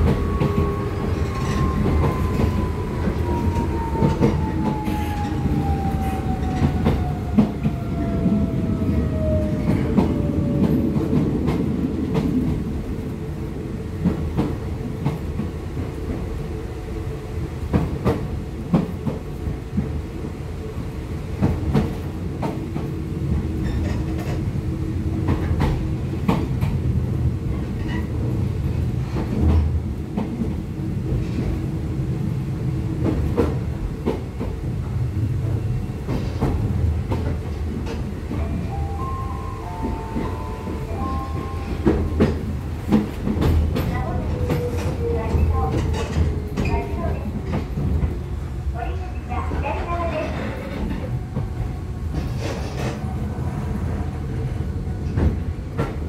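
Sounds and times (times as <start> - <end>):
train running rumble: 0.0 - 56.0
rail-joint clicks: 23.6 - 24.5, 36.1 - 48.2.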